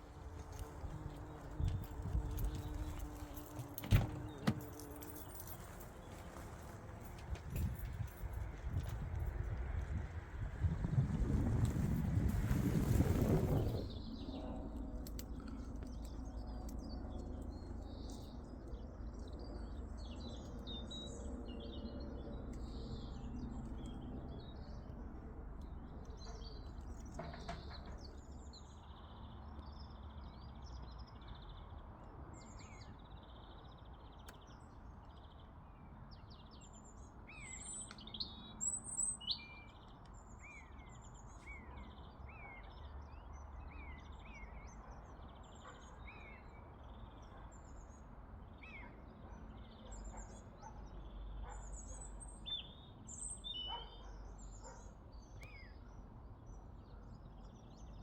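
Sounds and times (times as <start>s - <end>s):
small birds chirping: 0.0s - 9.3s, 32.4s - 58.0s.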